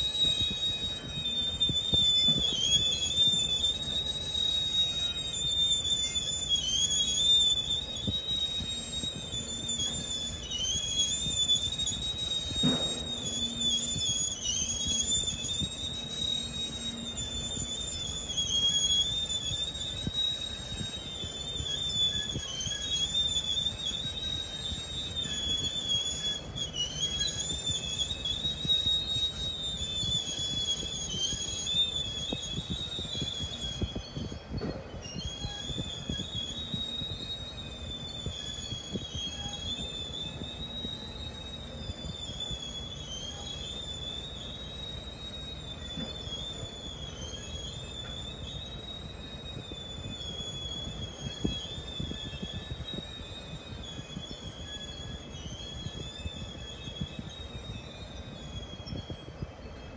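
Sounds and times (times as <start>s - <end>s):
train wheels squealing on rail: 0.0s - 59.9s.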